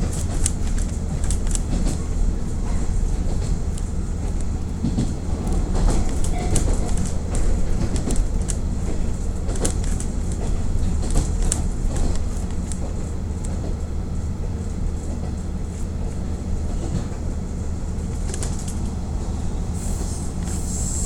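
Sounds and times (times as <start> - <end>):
wheels clicking over rail joints: 0.0 - 13.9
diesel engine humming: 0.0 - 21.0.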